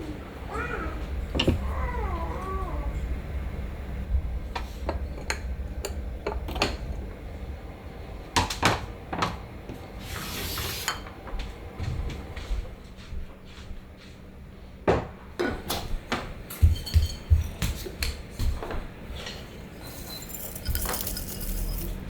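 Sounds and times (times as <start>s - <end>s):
dishes and cutlery clinking: 16.5s - 18.5s, 19.2s - 22.0s.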